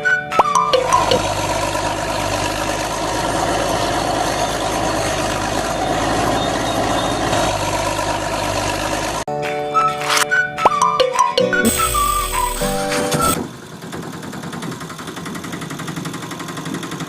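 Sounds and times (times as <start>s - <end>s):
vehicle engine idling: 0.8s - 9.2s, 13.4s - 17.0s.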